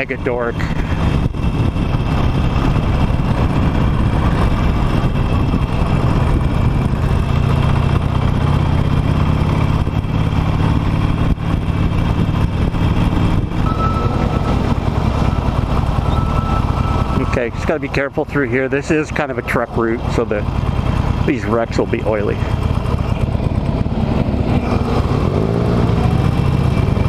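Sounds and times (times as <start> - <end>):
motorcycle engine running: 0.0 - 27.0
wind and road noise: 0.0 - 27.0.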